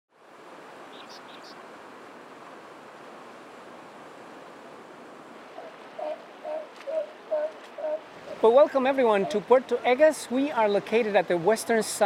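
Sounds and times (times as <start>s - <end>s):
ocean surf on the shore: 0.1s - 12.0s.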